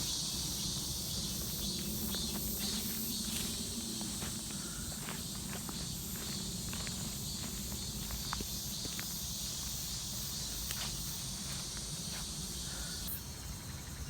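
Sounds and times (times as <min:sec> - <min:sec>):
footsteps through undergrowth: 0:00.0 - 0:12.6
insects chirring: 0:00.0 - 0:14.0.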